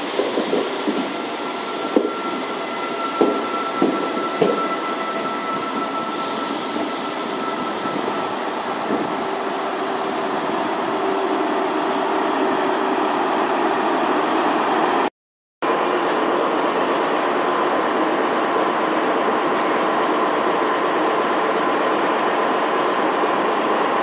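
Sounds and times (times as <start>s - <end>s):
train rail rumble: 0.0s - 15.1s.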